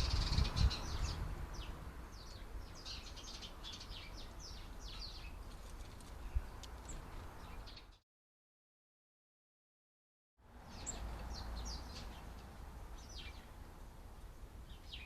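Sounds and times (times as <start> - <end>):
birds chirping: 0.0 - 8.0, 10.7 - 13.6, 14.2 - 15.0.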